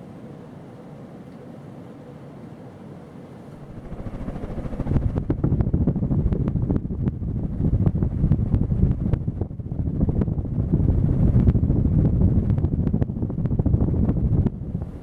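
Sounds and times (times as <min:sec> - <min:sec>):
ceiling fan running: 0:00.0 - 0:15.0
wind buffeting microphone: 0:03.6 - 0:15.0.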